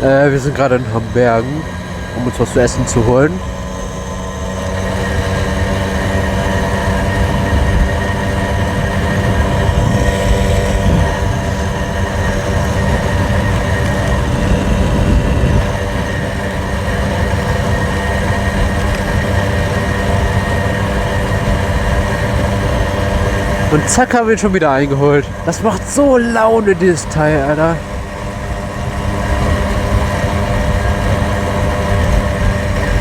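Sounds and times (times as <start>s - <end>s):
moped engine running: 0.0s - 33.0s
wind on microphone: 5.8s - 23.9s.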